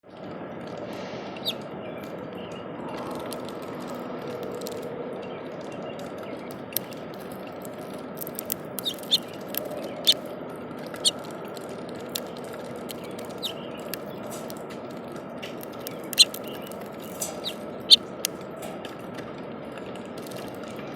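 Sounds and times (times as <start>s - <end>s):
steady background noise: 0.0s - 20.9s
small bird chirping: 1.4s - 1.6s, 8.2s - 10.2s, 11.0s - 11.2s, 12.1s - 14.5s, 15.8s - 18.0s
sharp clicks: 6.7s - 10.2s, 15.4s - 18.4s.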